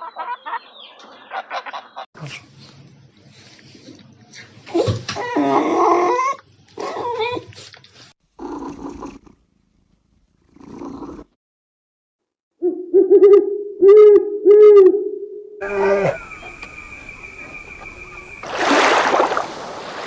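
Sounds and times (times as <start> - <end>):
animal calls: 15.6 - 20.0.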